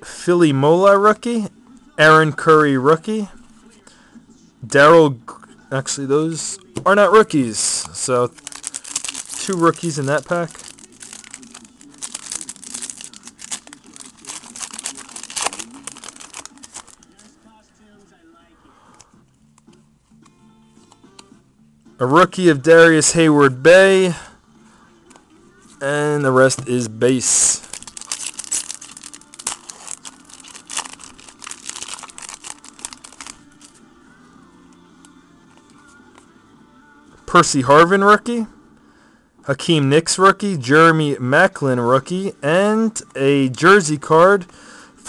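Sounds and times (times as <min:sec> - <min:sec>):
wrapper crinkling and tearing: 0:08.0 - 0:17.4, 0:26.3 - 0:33.8.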